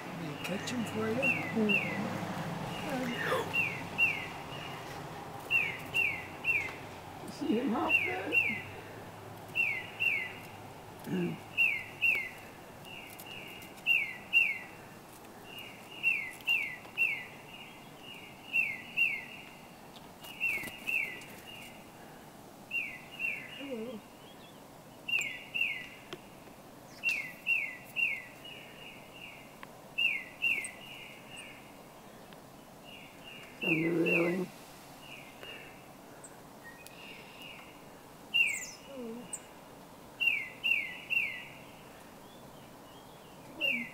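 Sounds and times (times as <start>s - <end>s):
songbird whistling: 3.5s - 4.3s, 5.5s - 6.8s, 9.6s - 10.4s, 38.4s - 38.9s.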